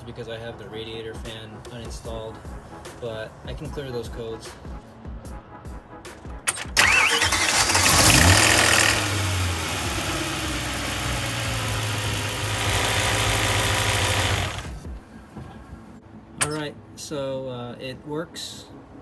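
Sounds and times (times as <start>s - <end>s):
starter motor cranking: 6.5s - 14.8s
car engine revving and idling: 6.8s - 14.8s.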